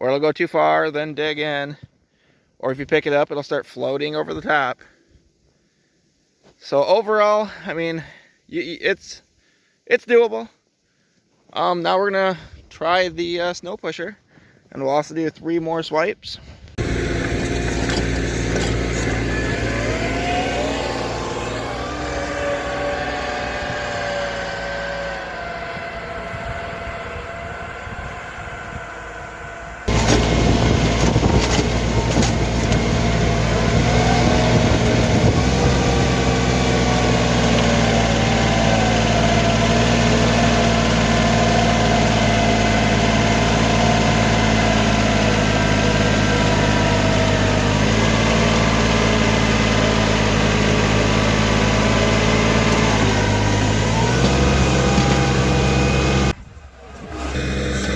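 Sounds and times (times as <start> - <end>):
tractor diesel engine running: 16.8 - 57.9.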